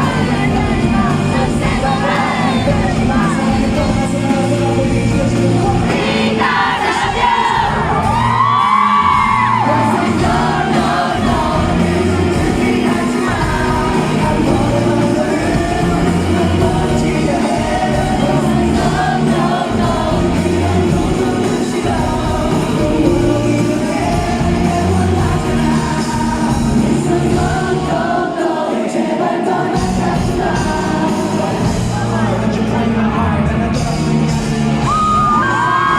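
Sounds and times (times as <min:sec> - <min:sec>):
live rock band playing: 0:00.0 - 0:28.3, 0:29.5 - 0:35.9
man singing lead vocal: 0:00.0 - 0:35.9
crowd cheering and whooping: 0:06.3 - 0:12.3, 0:34.4 - 0:35.9.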